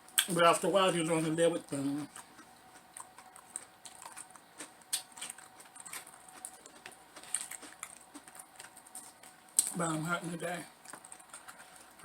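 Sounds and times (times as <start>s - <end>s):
chewing crispy fried chicken: 0.1s - 12.0s.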